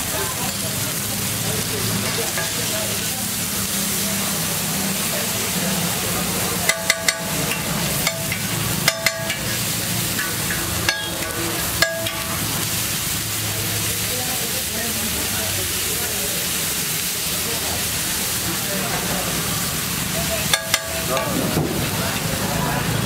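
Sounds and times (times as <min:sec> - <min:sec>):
food sizzling in oil: 0:00.0 - 0:23.0
metal spatula striking griddle: 0:02.0 - 0:02.7, 0:06.6 - 0:12.6, 0:20.4 - 0:21.8.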